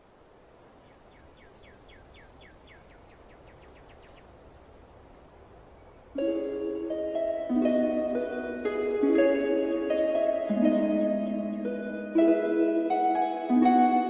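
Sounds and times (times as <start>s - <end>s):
steady background hiss: 0.0s - 14.0s
plucked-string music: 6.2s - 14.0s.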